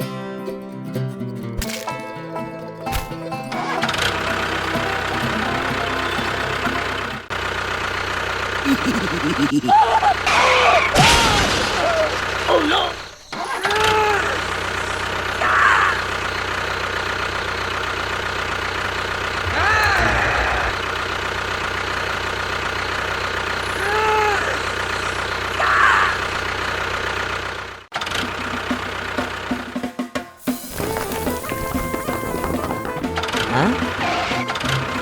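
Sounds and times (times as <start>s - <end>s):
engine running: 1.6s - 35.0s
voice-like calls: 3.1s - 7.3s, 8.6s - 16.4s, 19.4s - 20.9s, 23.5s - 26.7s, 30.7s - 35.0s.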